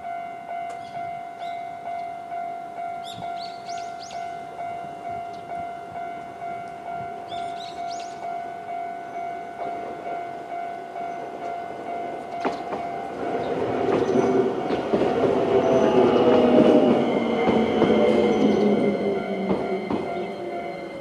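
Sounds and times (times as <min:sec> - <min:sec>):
electric train passing: 0:00.0 - 0:21.0
level crossing alarm ringing: 0:00.0 - 0:21.0
wheels clacking over rail joints: 0:11.2 - 0:21.0.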